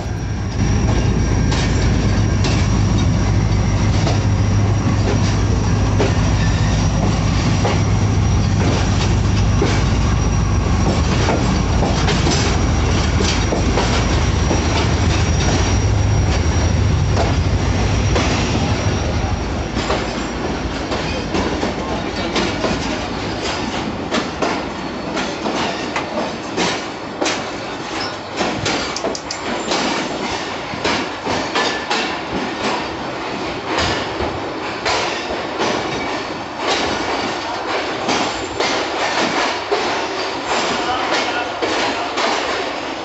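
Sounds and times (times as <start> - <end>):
train rumbling on rails: 0.0 - 43.0
wheels clicking over rail joints: 10.8 - 15.7.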